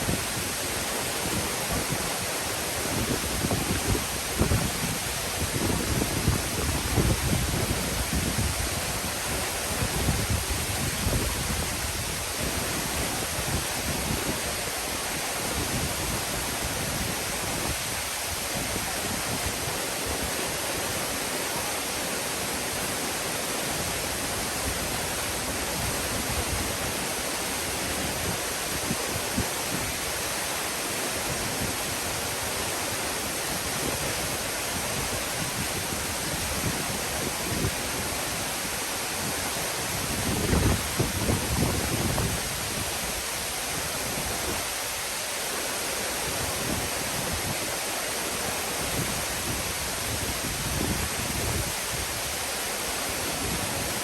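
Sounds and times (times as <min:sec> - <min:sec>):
waterfall rushing: 0:00.0 - 0:54.0
wind buffeting microphone: 0:02.8 - 0:14.4, 0:39.2 - 0:43.2.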